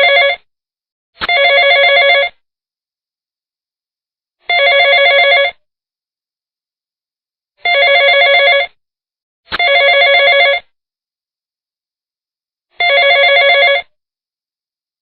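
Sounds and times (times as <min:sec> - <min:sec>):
telephone ringing: 0:00.0 - 0:00.4, 0:01.2 - 0:02.3, 0:04.5 - 0:05.6, 0:07.6 - 0:08.8, 0:09.6 - 0:10.6, 0:12.8 - 0:13.9.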